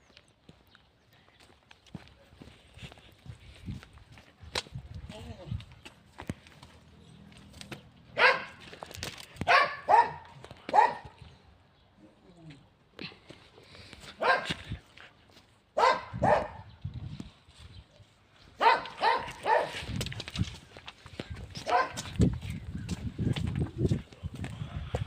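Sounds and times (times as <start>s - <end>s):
dog barking: 8.2s - 8.6s, 9.5s - 11.2s, 14.2s - 14.6s, 15.8s - 16.7s, 18.6s - 19.8s, 21.6s - 22.0s.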